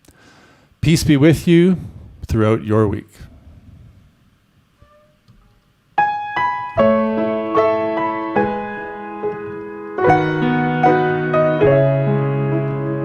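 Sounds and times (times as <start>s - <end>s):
solo piano music: 6.0s - 13.0s.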